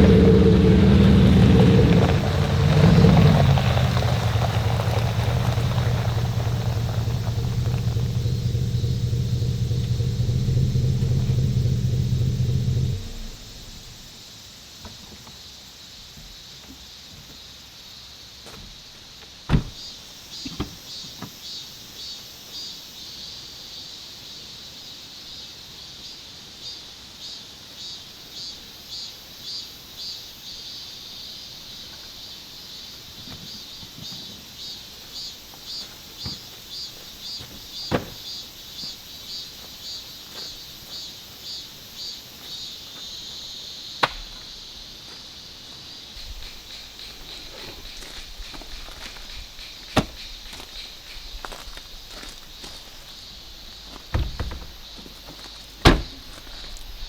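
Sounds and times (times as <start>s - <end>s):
faint hiss: 0.0s - 21.0s
insects chirping: 0.0s - 57.0s.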